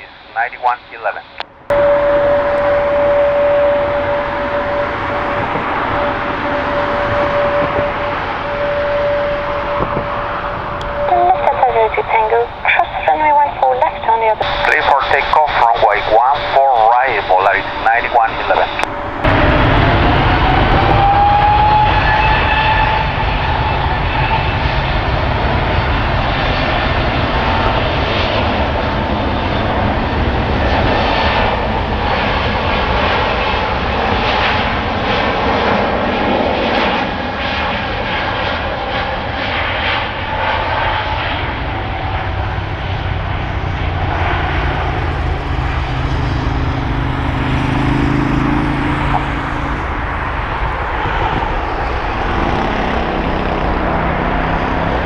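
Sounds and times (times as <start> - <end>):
jet engines with fan whine: 0.0 - 55.0.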